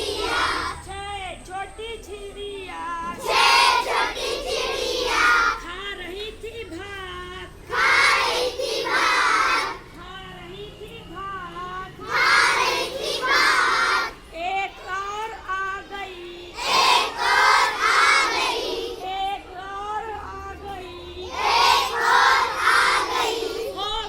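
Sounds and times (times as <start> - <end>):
children singing in chorus: 0.0 - 0.9, 3.0 - 5.7, 7.7 - 9.9, 12.0 - 19.3, 21.2 - 24.0.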